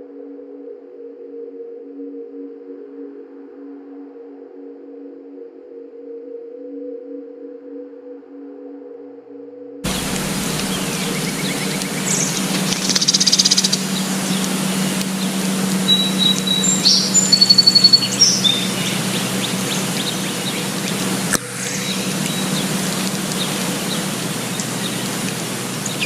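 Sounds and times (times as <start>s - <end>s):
birds calling: 9.9s - 26.0s
low hum: 9.9s - 26.0s
outdoor hiss: 9.9s - 26.0s.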